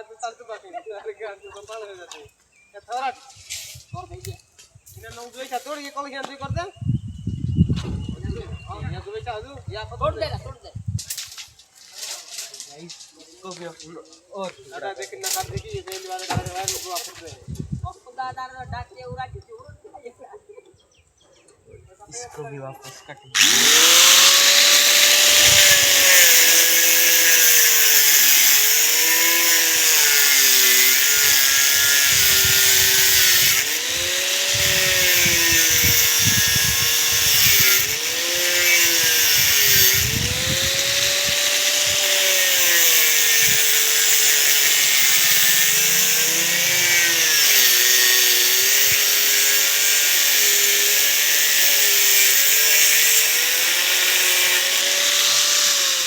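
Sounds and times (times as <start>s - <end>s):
power cutter cutting steel: 23.4s - 56.0s.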